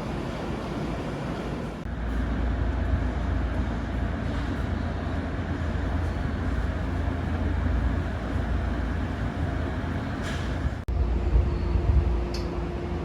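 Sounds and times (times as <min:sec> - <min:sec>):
electric train rumbling: 0:00.0 - 0:13.0.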